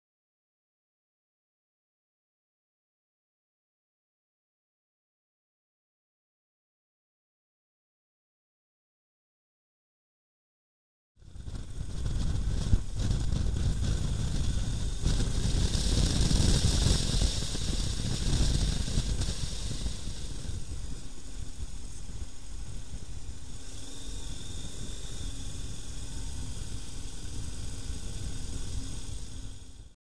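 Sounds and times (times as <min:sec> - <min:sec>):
motorcycle engine rumble: 0:11.2 - 0:30.0
riding wind rushing: 0:11.2 - 0:30.0.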